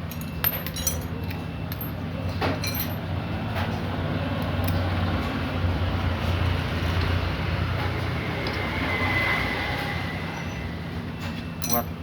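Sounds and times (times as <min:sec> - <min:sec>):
metal engine parts clinking: 0:00.0 - 0:03.1, 0:11.6 - 0:12.0.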